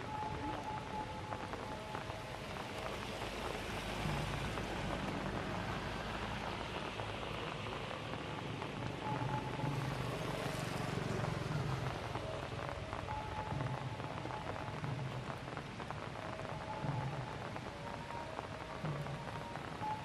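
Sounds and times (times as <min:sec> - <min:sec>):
light rain patter: 0:00.0 - 0:20.0.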